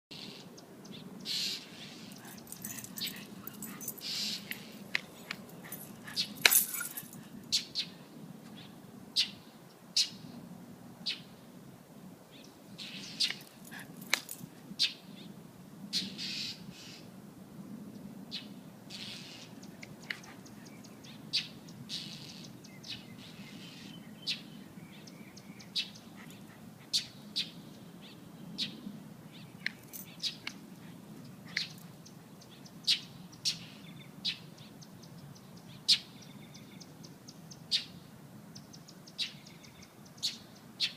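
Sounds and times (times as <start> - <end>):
bird chirping: 18.3 - 38.0, 38.6 - 40.9.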